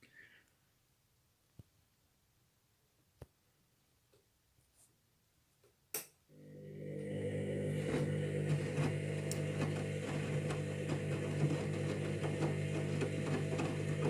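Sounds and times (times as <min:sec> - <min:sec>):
washing machine drum motor hum: 0:06.4 - 0:14.0.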